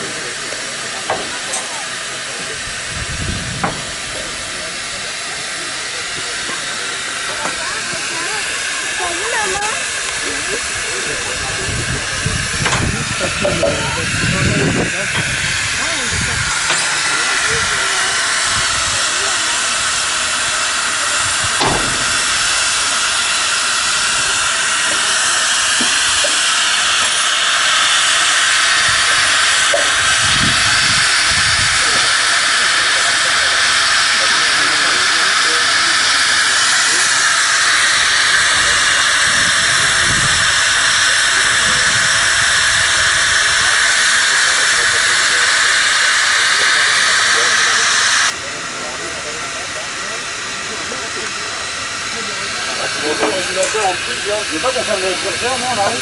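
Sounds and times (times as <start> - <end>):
steam hissing: 0.0 - 56.0
low thump: 21.6 - 22.2.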